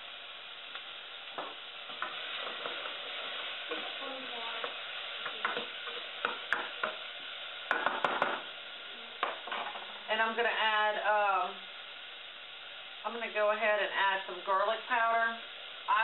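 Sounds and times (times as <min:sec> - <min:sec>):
food sizzling in a pot: 0:00.0 - 0:16.0
utensil scraping and knocking pot: 0:01.4 - 0:04.0.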